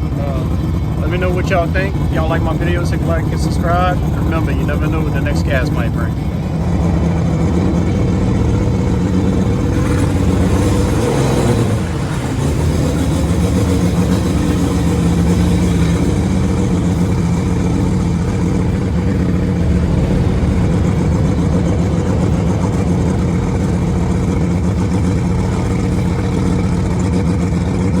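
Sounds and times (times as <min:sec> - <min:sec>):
outboard motor running: 0:00.0 - 0:28.0
wind and water rushing: 0:16.3 - 0:25.5.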